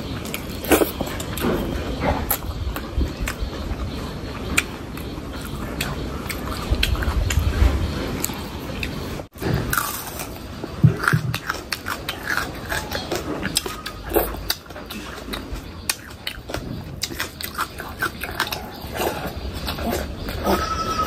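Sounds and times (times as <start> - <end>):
person biting and chewing: 0.0 - 3.4, 4.4 - 21.0.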